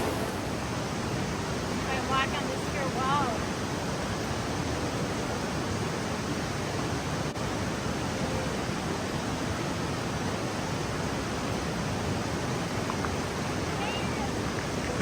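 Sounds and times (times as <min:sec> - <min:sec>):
fast river rushing: 0:00.0 - 0:15.0.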